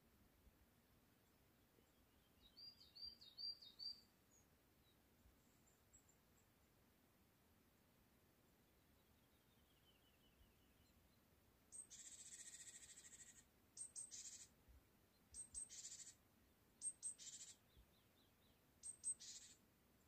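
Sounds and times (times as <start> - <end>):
songbird singing with buzzy trill: 1.8 - 5.0, 8.7 - 16.2, 16.8 - 19.6.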